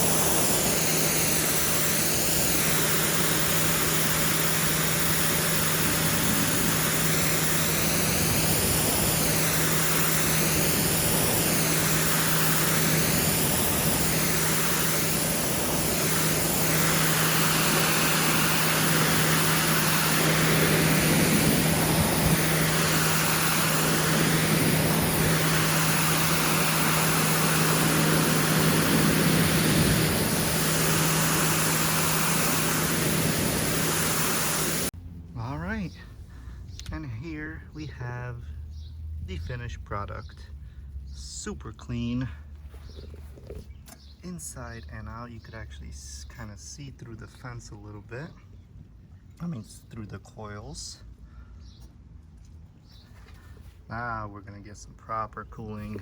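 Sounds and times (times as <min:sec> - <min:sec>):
water spray hissing on coils: 0:00.0 - 0:35.0
pressure washer motor hum: 0:00.0 - 0:46.8.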